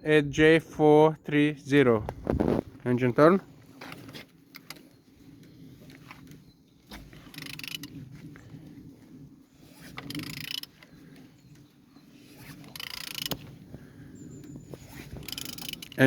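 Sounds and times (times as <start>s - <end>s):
diesel engine cranking puffs: 7.0s - 9.0s, 9.6s - 11.4s, 12.2s - 16.0s.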